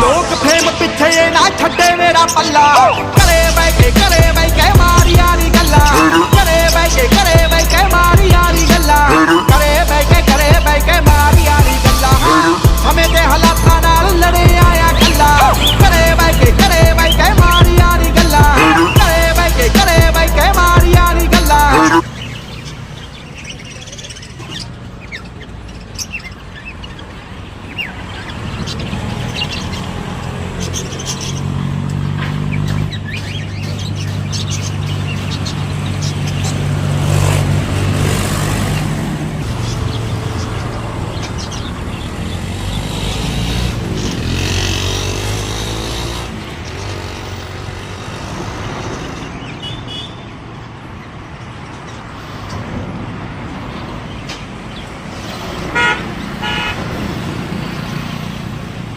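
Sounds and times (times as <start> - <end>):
vehicle engine drone: 0.0 - 22.0, 28.2 - 49.4
small birds chirping: 0.0 - 52.8.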